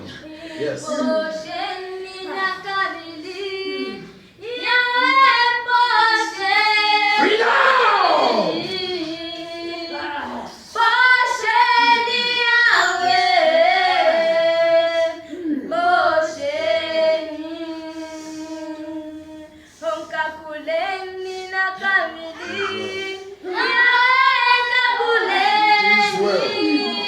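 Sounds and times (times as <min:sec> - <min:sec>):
high-pitched voice singing: 0:22.3 - 0:23.0.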